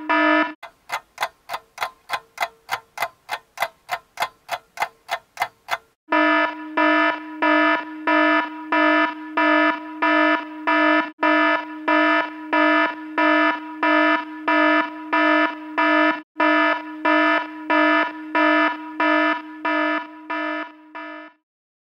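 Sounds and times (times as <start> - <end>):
electronic alarm buzzer beeping: 4.8 - 21.4.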